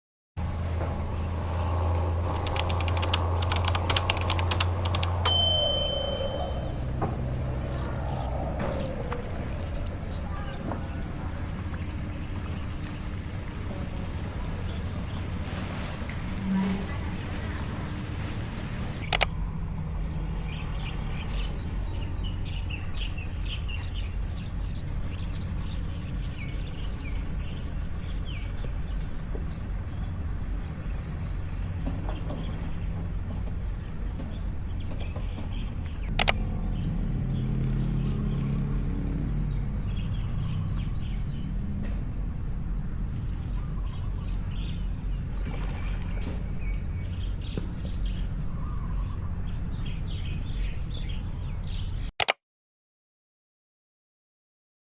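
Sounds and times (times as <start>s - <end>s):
low rumble: 6.1s - 31.7s.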